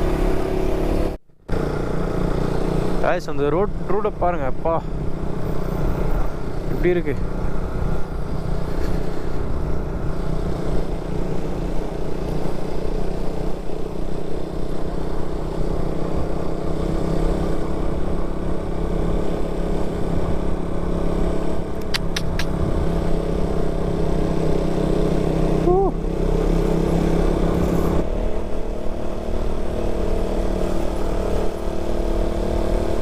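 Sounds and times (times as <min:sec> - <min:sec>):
motorcycle engine cruising: 0:00.0 - 0:33.0.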